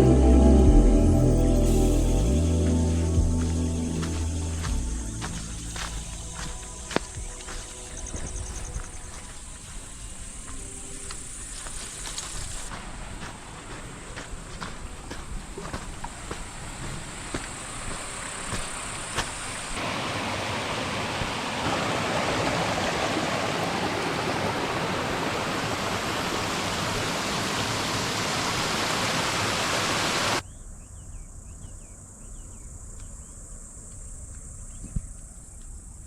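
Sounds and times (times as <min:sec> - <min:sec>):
high-pitched insect drone: 0:00.0 - 0:12.7
faint insect chirps: 0:01.9 - 0:13.0, 0:30.4 - 0:36.0.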